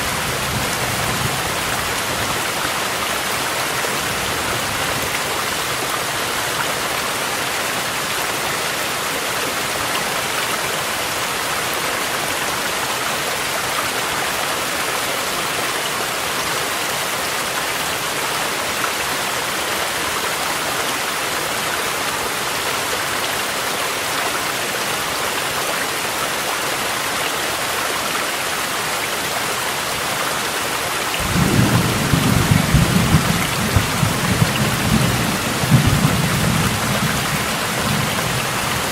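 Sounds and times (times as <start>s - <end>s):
rushing mountain stream: 0.0s - 38.9s
low rumble of thunder: 31.2s - 38.4s.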